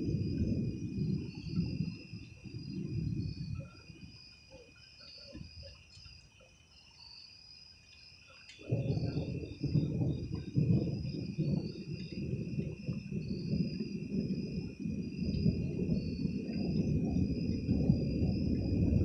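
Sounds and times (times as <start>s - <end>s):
thunder rumbling: 0.0s - 4.2s, 8.6s - 19.0s
crickets chirping: 0.0s - 19.0s.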